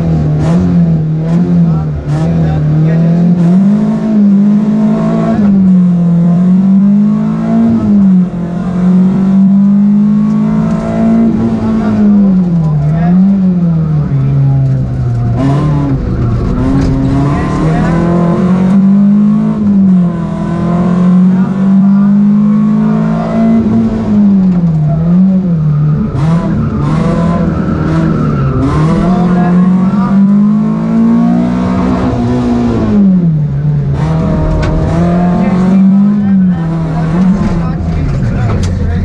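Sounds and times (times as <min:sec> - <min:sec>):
rally car engine revving: 0:00.0 - 0:39.0.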